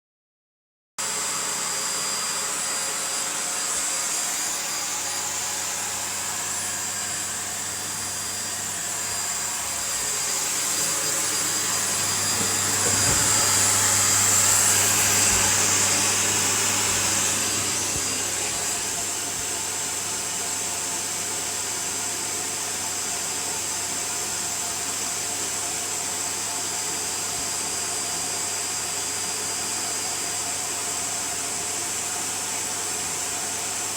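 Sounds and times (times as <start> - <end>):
vacuum cleaner running: 1.0 - 33.9.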